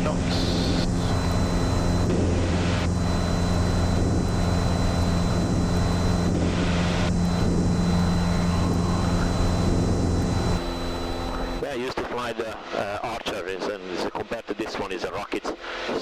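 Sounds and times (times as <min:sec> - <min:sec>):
airplane engine drone in cabin: 0:00.0 - 0:12.9, 0:15.2 - 0:16.0.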